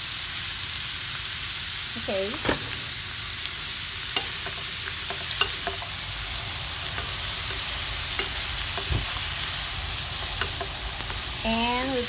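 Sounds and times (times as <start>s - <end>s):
food sizzling in a frying pan: 0.0s - 12.0s
utensil clicking while stirring: 4.2s - 6.0s, 6.8s - 9.0s, 10.2s - 10.9s.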